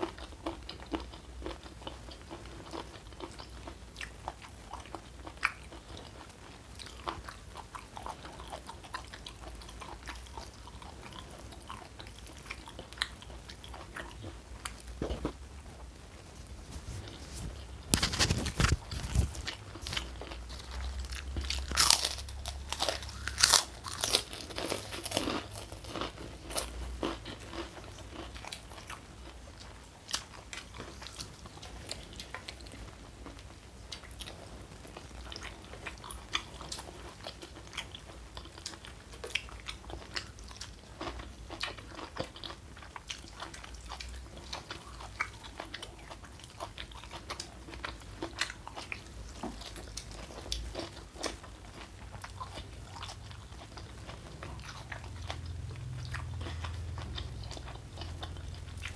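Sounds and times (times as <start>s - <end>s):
steady chewing: 0.0s - 58.9s
crunching food: 16.7s - 58.9s.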